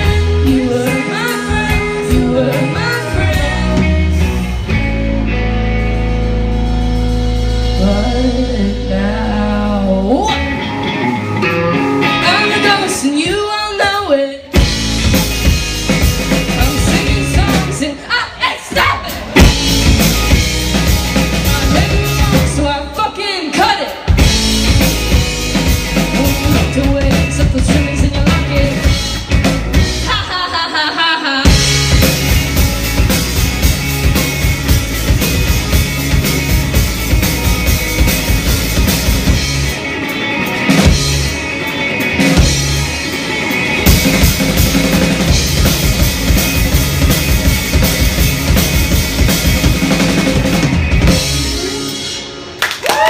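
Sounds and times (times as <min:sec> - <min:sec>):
woman singing: 0:00.0 - 0:04.4, 0:07.8 - 0:10.4, 0:11.4 - 0:14.6, 0:16.5 - 0:19.4, 0:20.8 - 0:24.0, 0:26.1 - 0:29.1, 0:30.0 - 0:31.7
drums: 0:00.0 - 0:53.0
live rock band: 0:00.0 - 0:53.0.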